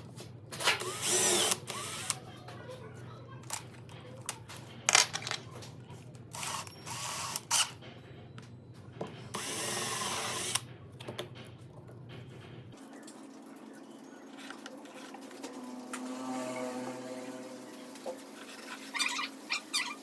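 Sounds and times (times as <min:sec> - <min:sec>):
power tool bursts: 0:00.8 - 0:02.2
clicks and knocks of handling: 0:03.4 - 0:06.3.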